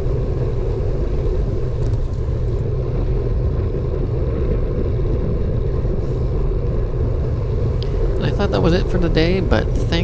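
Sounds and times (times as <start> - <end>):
bicycle road noise: 0.0 - 10.0
low wind rumble: 0.0 - 10.0.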